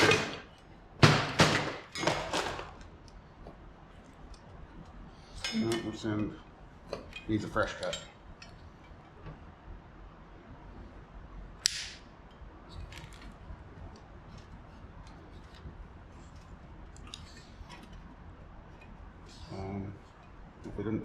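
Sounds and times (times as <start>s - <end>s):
sharp snip of plastic tube: 11.6s - 12.0s
faint handling sounds: 12.3s - 20.9s.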